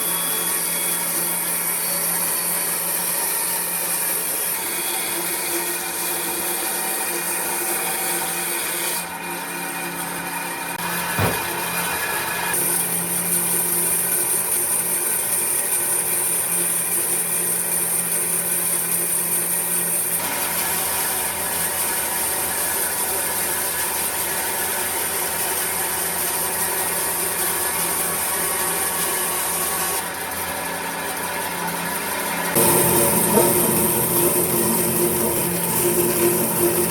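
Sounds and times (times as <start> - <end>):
power tool working wood: 32.6 - 36.9.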